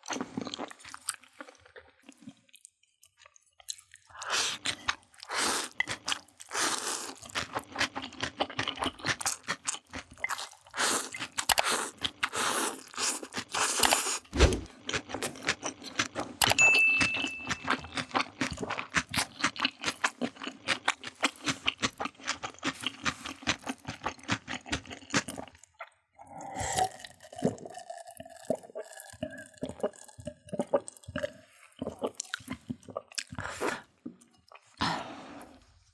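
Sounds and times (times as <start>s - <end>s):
crunching and chewing food: 0.0s - 16.6s, 17.4s - 35.9s
held tones: 16.5s - 18.0s.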